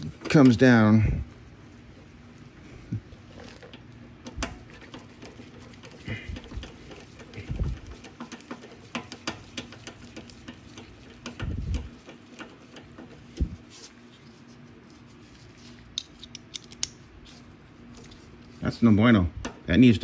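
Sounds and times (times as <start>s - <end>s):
small metal parts clicking: 15.9s - 17.0s.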